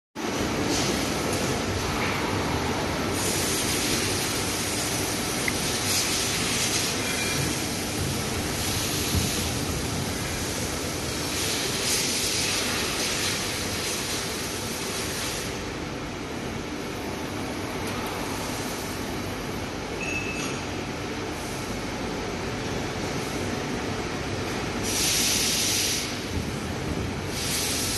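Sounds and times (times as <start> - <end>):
machine hissing: 3.1 - 15.5, 24.8 - 26.4, 27.2 - 27.9.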